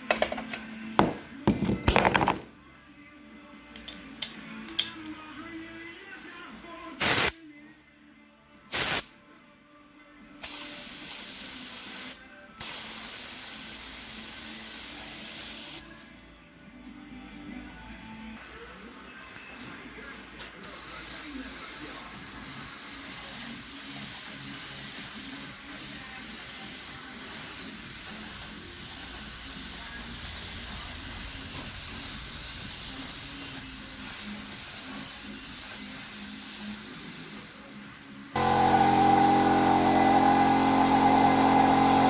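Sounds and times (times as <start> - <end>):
spray paint hissing: 7.0 - 7.4, 8.7 - 9.1, 10.4 - 15.9, 20.6 - 42.0.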